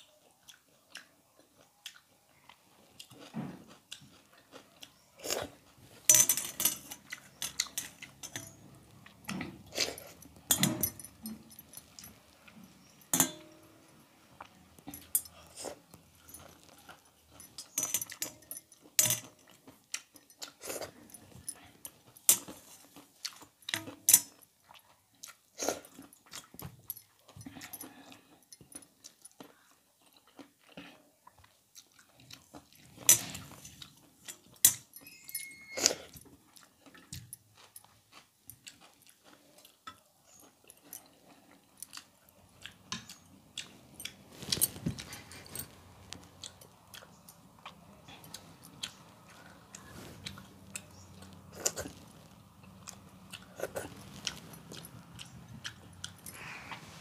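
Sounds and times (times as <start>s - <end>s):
crunching crisp snacks: 35.8s - 56.5s.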